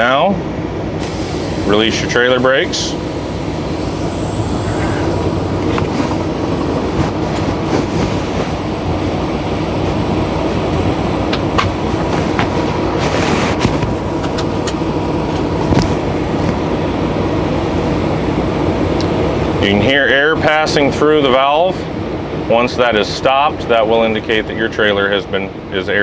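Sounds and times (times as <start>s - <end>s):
diesel engine idling: 0.0s - 26.0s
air rushing through valve: 1.0s - 17.1s.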